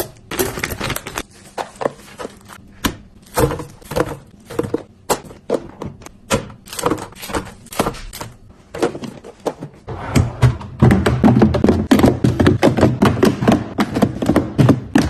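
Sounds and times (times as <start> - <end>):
containers knocking and clattering: 0.0 - 15.0.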